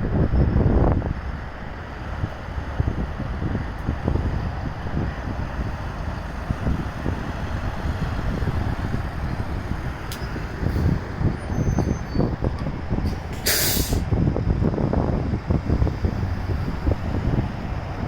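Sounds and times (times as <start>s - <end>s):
wind buffeting microphone: 0.0s - 18.0s
short sharp hiss: 13.3s - 14.0s.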